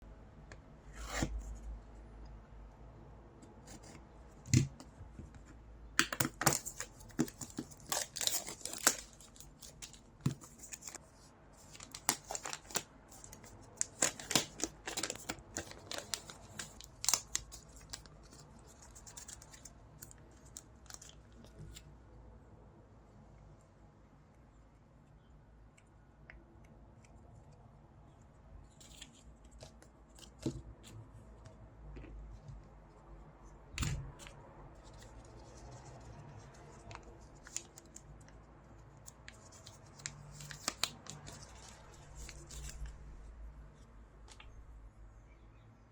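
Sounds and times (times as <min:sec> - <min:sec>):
packaging tearing and crinkling: 0:06.1 - 0:11.0, 0:11.7 - 0:19.7.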